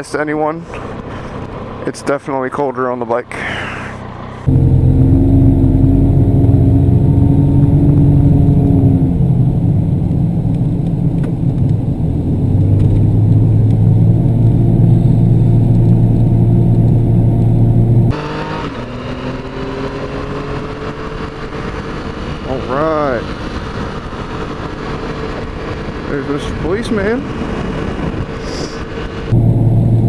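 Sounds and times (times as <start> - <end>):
motorcycle engine running: 4.1 - 18.2.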